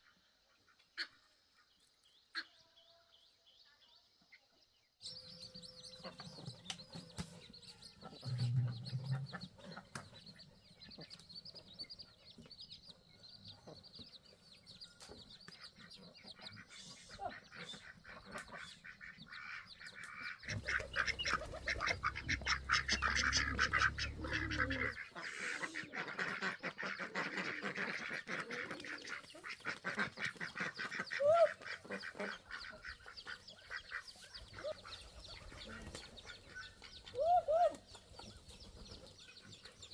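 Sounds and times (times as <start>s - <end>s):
ducks quacking: 0.0s - 1.7s, 5.0s - 11.3s, 15.5s - 39.9s
geese honking: 16.5s - 37.8s.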